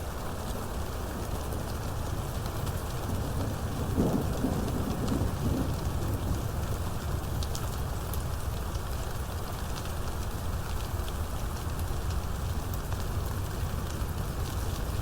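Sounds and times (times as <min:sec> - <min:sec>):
heavy rain falling: 0:00.1 - 0:15.0
thunder rumble: 0:03.1 - 0:06.6.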